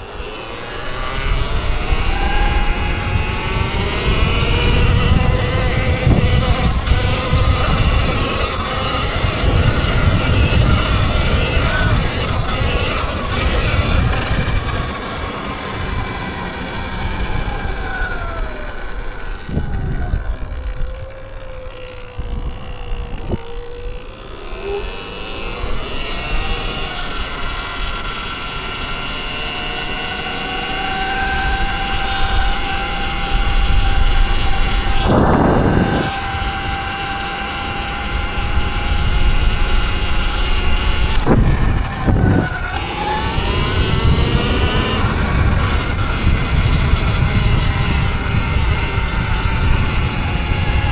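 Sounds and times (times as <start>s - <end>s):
electric dirt bike motor whine: 0.0s - 50.9s.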